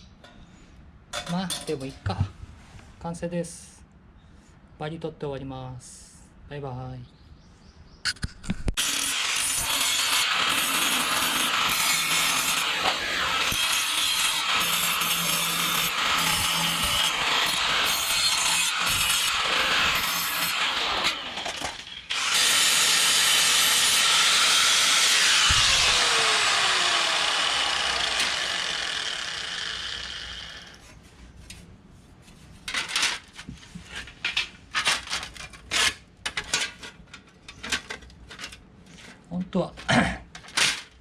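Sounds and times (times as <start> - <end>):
power tool spinning: 8.8 - 30.8.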